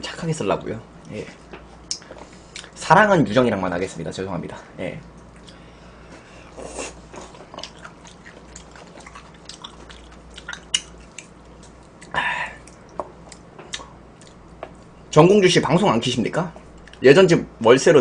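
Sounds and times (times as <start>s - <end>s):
wet chewing mouth sounds: 6.5s - 14.8s.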